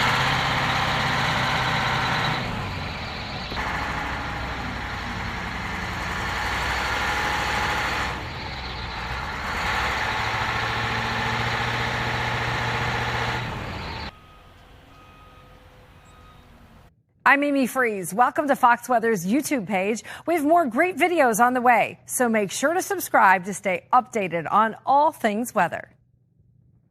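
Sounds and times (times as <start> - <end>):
rushing noise of plowing: 0.0 - 16.9
snowplow truck engine running: 0.0 - 16.9.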